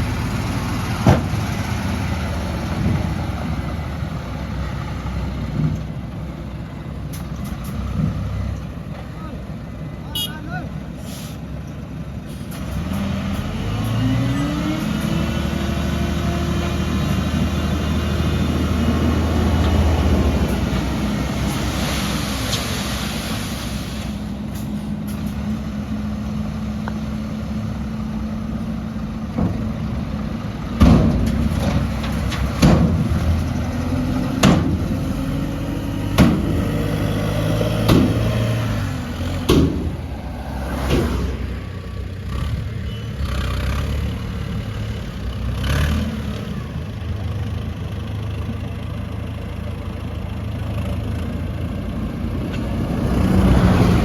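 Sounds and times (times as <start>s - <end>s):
heavy diesel engine revving: 12.4s - 49.3s, 50.2s - 54.0s
loud sharp knocks: 34.4s - 35.0s, 36.1s - 36.7s, 37.8s - 38.4s, 39.5s - 40.0s.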